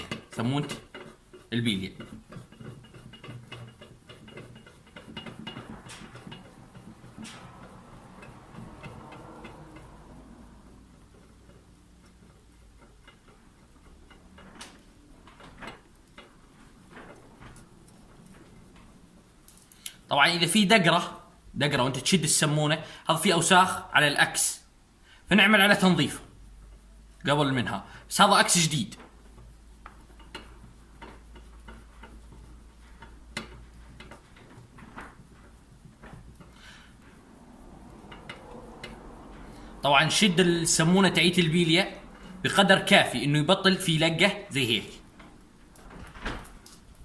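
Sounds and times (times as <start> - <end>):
small clicks of bearing parts: 0.0 - 20.1, 29.0 - 37.2.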